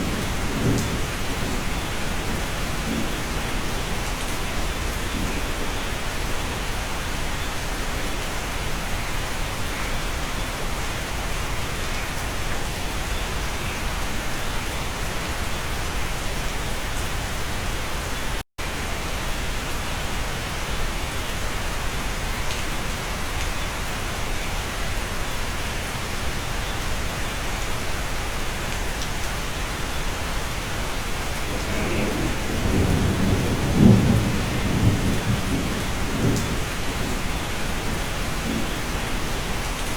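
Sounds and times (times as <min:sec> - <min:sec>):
low rumble of thunder: 0:00.0 - 0:07.2, 0:31.0 - 0:39.9
steady rain: 0:00.0 - 0:39.9.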